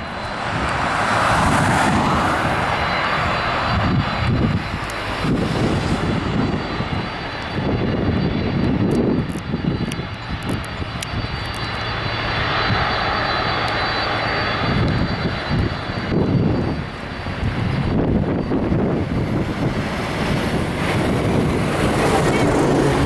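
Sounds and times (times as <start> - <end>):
high-pitched engine whine: 0.0 - 23.0
jet engines rumbling: 0.0 - 23.0.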